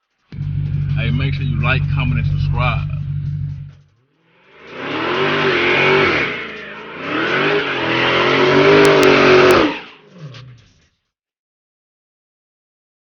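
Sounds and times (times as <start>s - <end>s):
car engine revving: 0.2s - 10.9s
sharp clicks: 8.7s - 10.7s.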